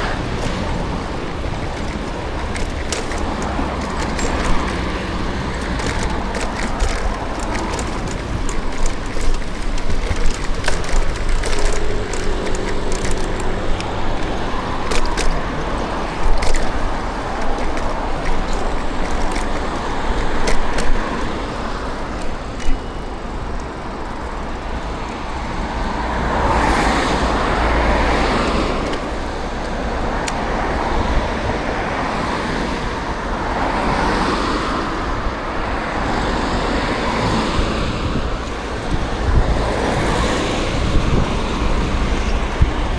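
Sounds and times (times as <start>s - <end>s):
rush of road traffic: 0.0s - 42.9s
vehicles passing: 0.0s - 42.9s
sharp clicks and knocks: 0.1s - 24.8s.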